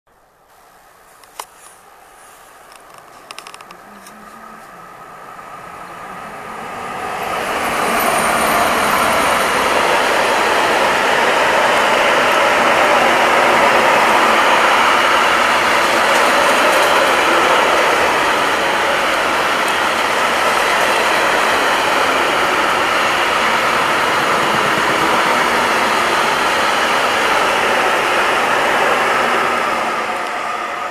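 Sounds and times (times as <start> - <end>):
freight train wheels rolling: 6.6 - 30.9.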